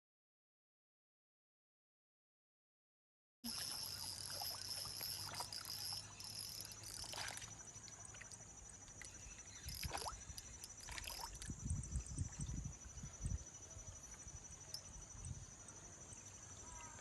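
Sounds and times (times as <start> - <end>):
insects chirring: 3.5 - 17.0.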